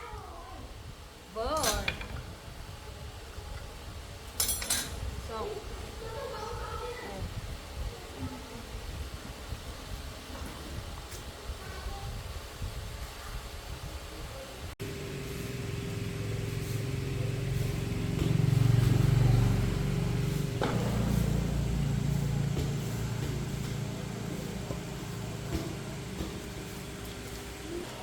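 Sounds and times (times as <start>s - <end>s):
motorcycle engine running: 14.8s - 27.9s.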